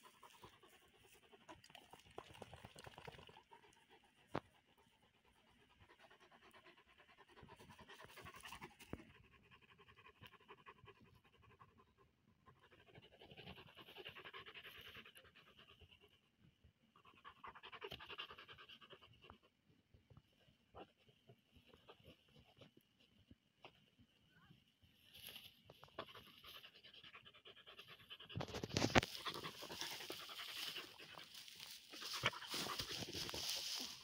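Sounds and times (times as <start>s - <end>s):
dog panting rapidly: 3.5s - 16.1s, 26.0s - 34.0s.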